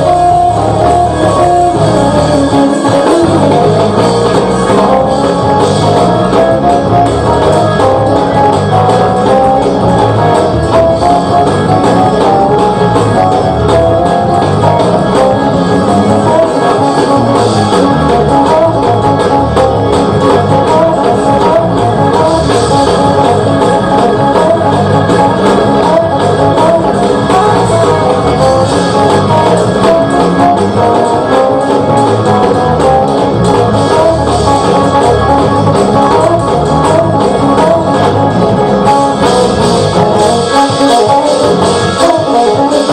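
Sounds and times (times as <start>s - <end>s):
drums: 0.0s - 42.9s
guitar: 0.0s - 42.9s
loud band music: 0.0s - 42.9s.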